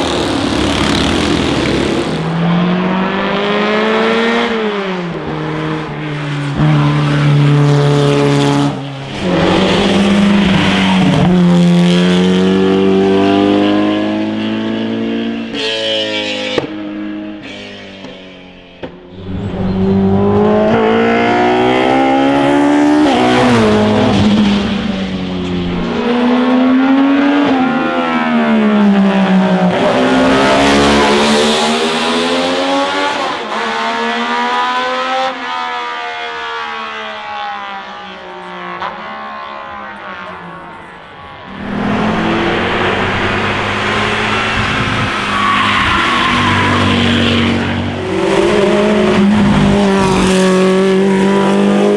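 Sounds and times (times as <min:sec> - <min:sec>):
racing car engines accelerating: 0:00.0 - 0:51.9.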